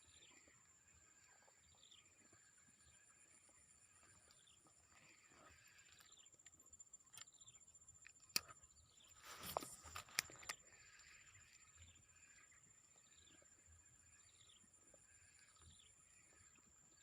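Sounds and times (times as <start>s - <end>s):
short rustle: 9.1s - 10.5s
sharp clicks: 9.4s - 10.6s.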